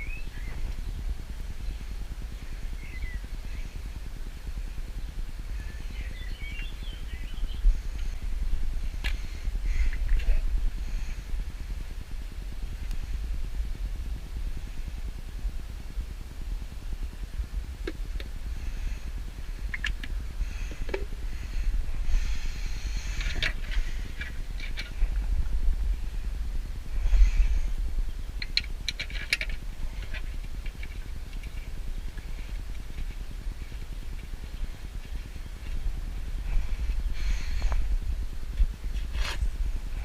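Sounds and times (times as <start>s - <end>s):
steady low rumble: 0.0s - 40.0s
light clicks and scrapes: 38.6s - 39.5s.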